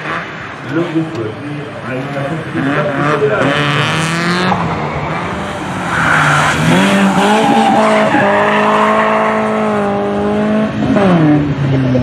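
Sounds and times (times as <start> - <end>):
car engine revving hard: 1.8 - 11.8
tyres squealing on tarmac: 5.0 - 9.6.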